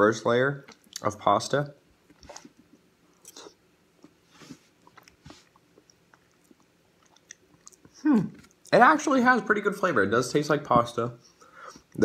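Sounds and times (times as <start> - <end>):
person chewing: 0.6 - 1.1, 2.0 - 8.7.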